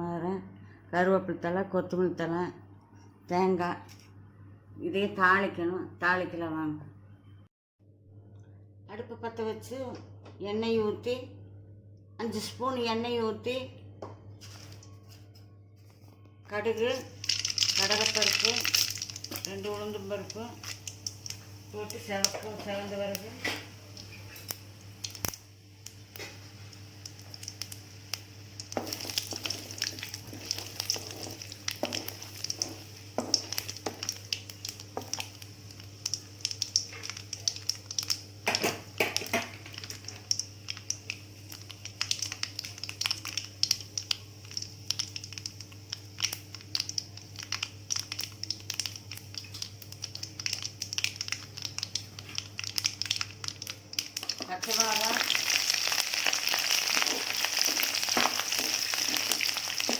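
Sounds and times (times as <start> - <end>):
oil sizzling: 16.8 - 59.9
seeds popping in hot oil: 16.8 - 59.9.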